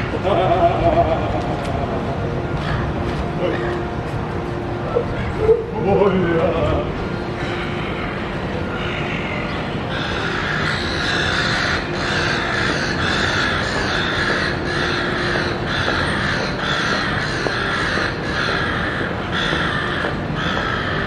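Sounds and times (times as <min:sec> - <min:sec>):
gulls squawking: 0:07.1 - 0:21.0.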